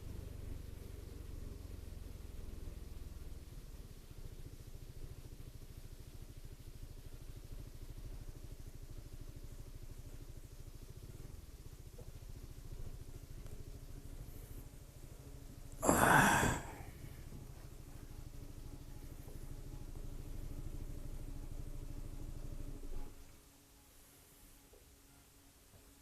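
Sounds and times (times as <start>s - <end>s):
scooter engine idling: 0.0s - 23.3s
loud breathy rush: 15.8s - 17.0s.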